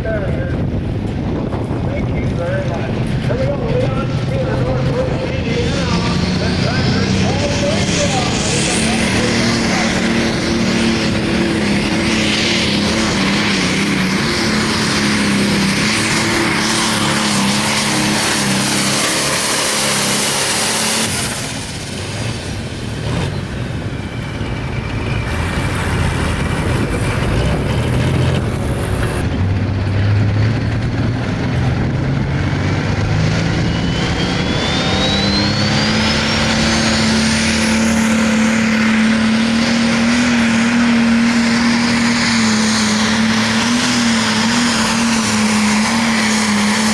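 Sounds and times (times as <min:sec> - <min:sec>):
diesel engine revving under load: 0:00.6 - 0:46.9
thin rising whistle: 0:33.6 - 0:37.0.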